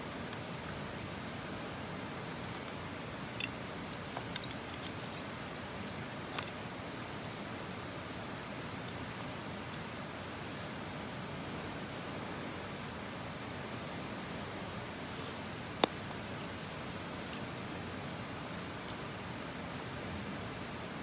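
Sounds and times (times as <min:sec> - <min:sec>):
campfire burning with hiss: 0:00.0 - 0:21.0
fire crackles and pops: 0:15.2 - 0:16.0.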